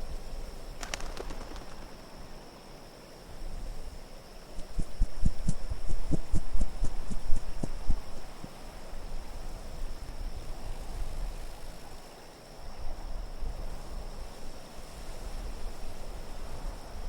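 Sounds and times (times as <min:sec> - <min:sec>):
soft low thumps: 0:04.6 - 0:08.4.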